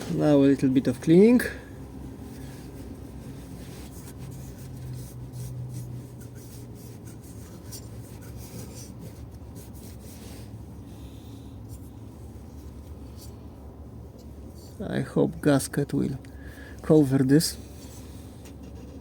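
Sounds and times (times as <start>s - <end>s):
steady low hum: 0.0s - 19.0s
rubbing and scraping on metal: 2.2s - 10.7s.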